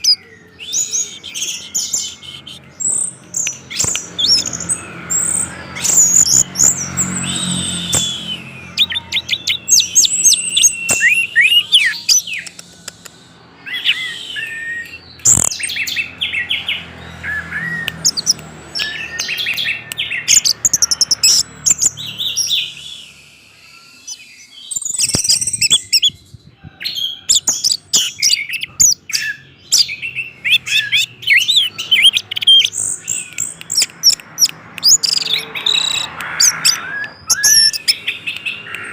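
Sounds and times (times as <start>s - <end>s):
thrush singing: 0.0s - 26.0s.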